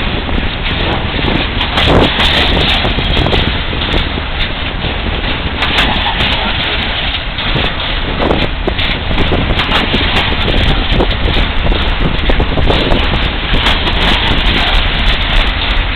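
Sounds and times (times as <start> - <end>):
clicks and knocks of wheels: 0.0 - 15.9
train wheels rumbling on rail: 0.0 - 15.9
wind buffeting microphone: 0.0 - 15.9.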